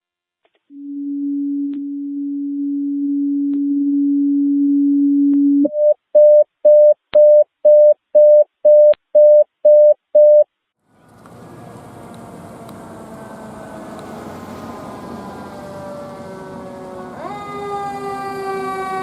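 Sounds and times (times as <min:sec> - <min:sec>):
vehicle engine rumbling: 0:10.8 - 0:19.0.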